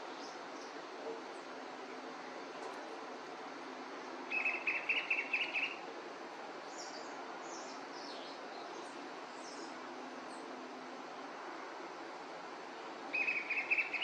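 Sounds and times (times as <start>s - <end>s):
songbirds chattering: 4.0s - 5.8s, 6.6s - 10.5s, 13.1s - 14.0s.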